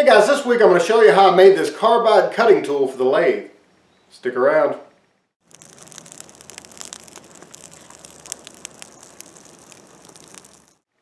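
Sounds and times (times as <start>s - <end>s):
sharp pops from fire: 5.4s - 10.9s
fire crackling and hissing: 5.4s - 11.0s.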